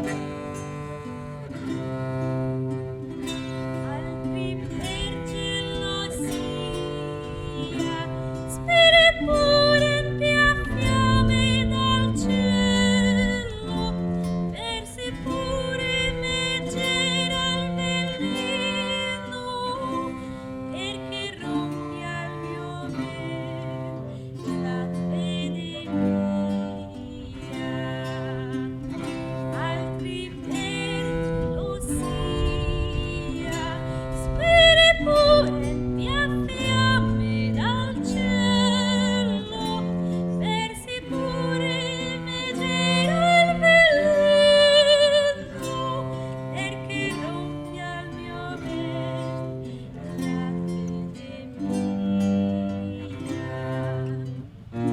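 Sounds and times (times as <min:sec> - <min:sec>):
held bass notes: 0:00.0 - 0:18.4
plucked strings: 0:00.0 - 0:54.9.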